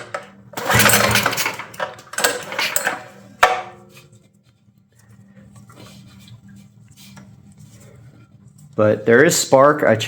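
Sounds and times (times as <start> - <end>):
recoil starter whir: 0.0 - 3.6.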